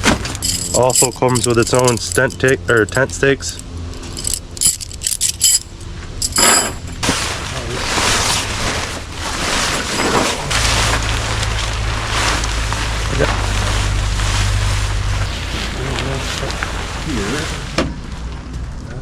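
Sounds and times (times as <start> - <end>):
metal clinking and rattling: 0.0 - 7.1
low steady hum: 0.0 - 19.0.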